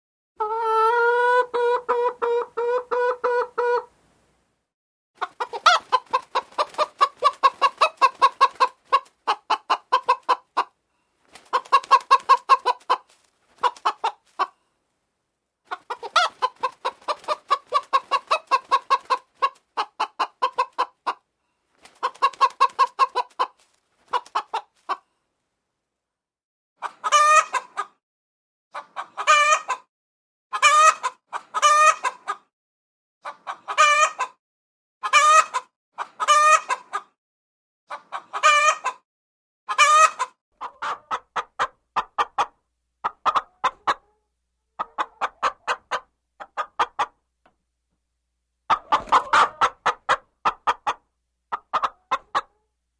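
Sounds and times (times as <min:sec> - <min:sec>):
hens clucking: 0:00.4 - 0:03.9, 0:05.2 - 0:14.6, 0:15.7 - 0:21.2, 0:21.9 - 0:25.0, 0:26.8 - 0:28.0, 0:28.8 - 0:29.9, 0:30.5 - 0:32.5, 0:33.2 - 0:34.4, 0:35.0 - 0:37.2, 0:37.9 - 0:39.0, 0:39.7 - 0:47.2, 0:48.7 - 0:52.6.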